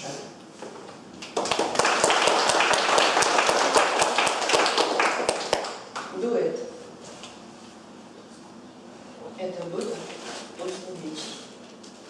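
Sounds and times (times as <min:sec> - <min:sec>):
audience applauding: 0:01.3 - 0:06.1.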